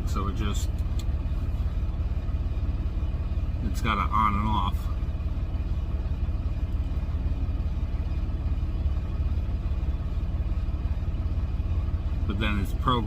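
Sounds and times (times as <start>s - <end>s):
truck diesel engine and road noise: 0.0s - 13.0s.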